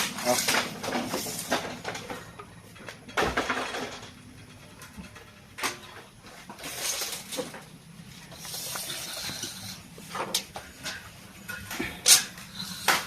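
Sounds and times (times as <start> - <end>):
knocks and clatter on steel: 0.0 - 7.8
steady low hum: 0.0 - 13.0.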